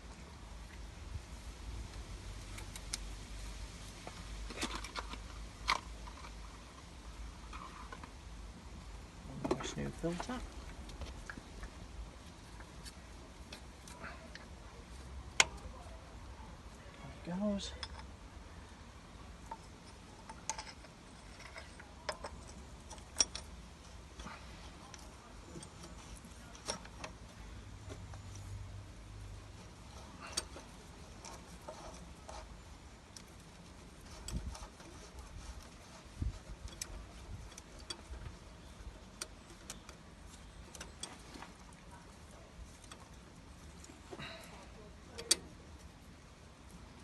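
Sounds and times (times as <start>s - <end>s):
low steady hum: 0.0s - 47.0s
light metallic clicks and taps: 33.1s - 46.2s.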